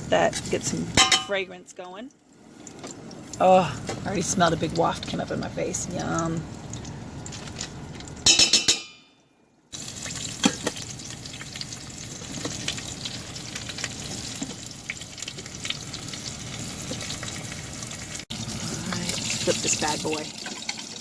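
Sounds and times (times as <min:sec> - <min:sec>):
meat sizzling in hot fat: 0:09.7 - 0:21.0.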